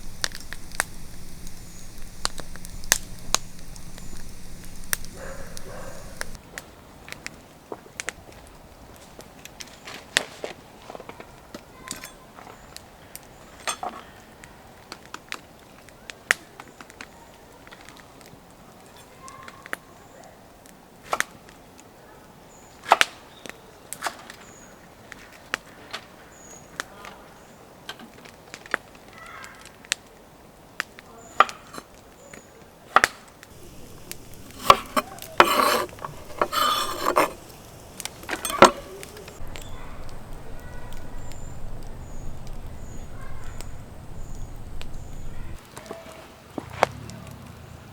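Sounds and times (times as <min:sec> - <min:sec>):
cookware and utensils clinking: 0:00.0 - 0:06.4, 0:33.5 - 0:45.6
rustling or scraping: 0:00.0 - 0:06.4, 0:33.5 - 0:45.6.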